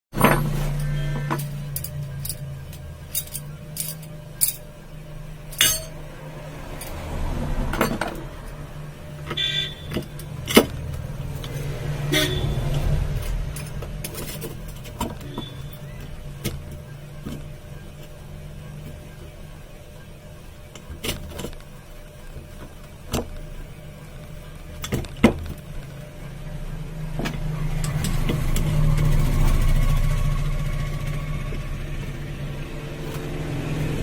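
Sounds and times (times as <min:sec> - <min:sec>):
steady low hum: 0:00.2 - 0:34.0
ringing metal clank: 0:05.6 - 0:06.0.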